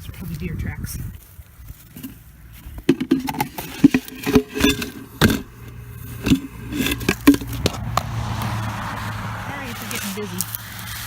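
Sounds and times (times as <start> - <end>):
knocks and scrapes of container: 1.8 - 10.6.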